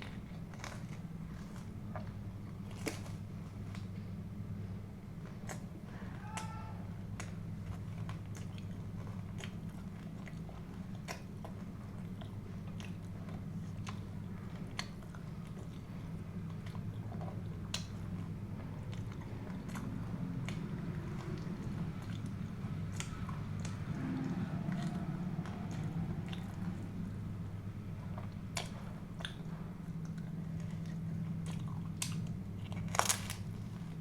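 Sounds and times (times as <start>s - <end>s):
small wet clicks and crunches: 0.0s - 4.1s, 28.4s - 34.0s
chewing and biting food: 0.0s - 34.0s
steady low hum: 0.0s - 34.0s.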